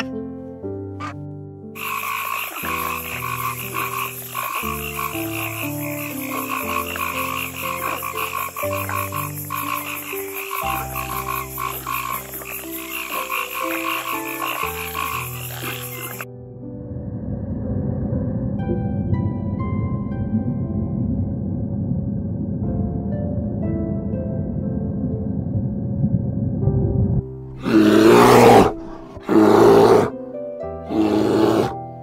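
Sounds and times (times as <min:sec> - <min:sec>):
soft background music: 0:00.0 - 0:32.0
frogs croaking in chorus: 0:01.8 - 0:16.3, 0:27.6 - 0:30.1, 0:30.9 - 0:31.8.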